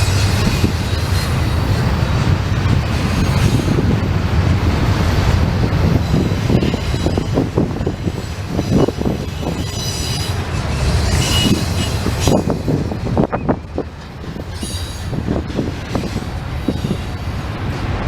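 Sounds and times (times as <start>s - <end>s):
freight train rumbling: 0.0s - 18.0s
wheels clanking over rail joints: 0.0s - 18.0s
high-pitched wheel squeal: 5.9s - 12.8s.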